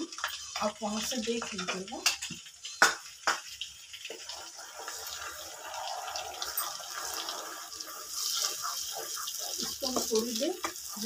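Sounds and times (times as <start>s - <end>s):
paste sizzling in butter: 0.0s - 11.0s
wooden spoon stirring: 4.1s - 11.0s.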